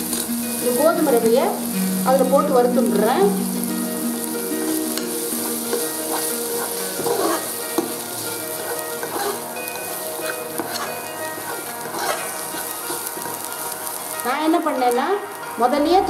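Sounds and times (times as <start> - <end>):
food sizzling in hot oil: 0.0 - 16.0
steel spoon scraping pan: 4.9 - 14.2.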